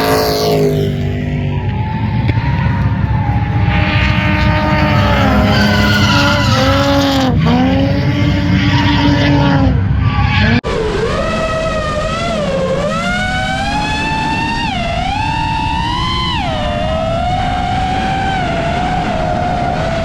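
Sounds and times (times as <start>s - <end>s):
tyres skidding: 0.0s - 10.6s
wavering tone: 0.0s - 17.6s
car engine revving: 0.0s - 20.0s.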